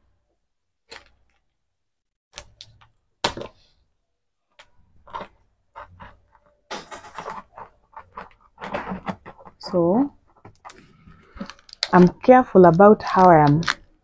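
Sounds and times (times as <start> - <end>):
cardboard tearing: 5.0 - 11.9.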